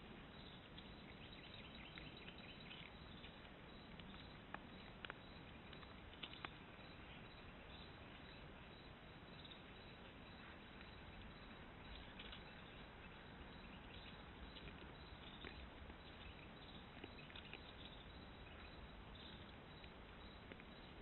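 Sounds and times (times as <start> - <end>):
faint microphone hiss: 0.0 - 21.0.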